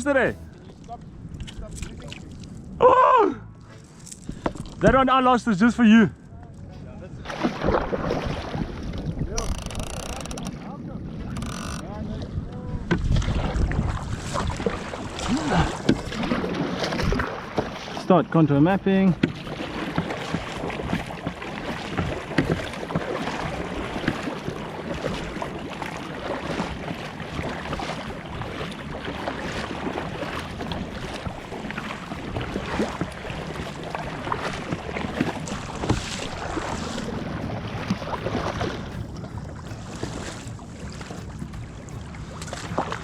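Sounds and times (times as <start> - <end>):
water splashing against a hull: 0.0 - 43.0
wind on the microphone: 6.6 - 17.8.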